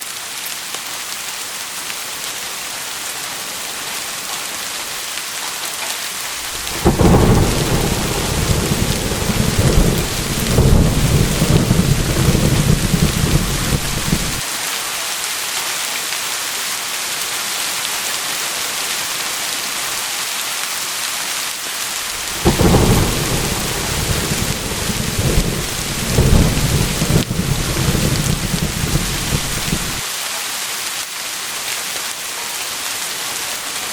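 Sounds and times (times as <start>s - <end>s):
heavy rain hiss: 0.0s - 33.9s
deep rumbling thunder: 6.4s - 14.4s, 22.1s - 30.0s.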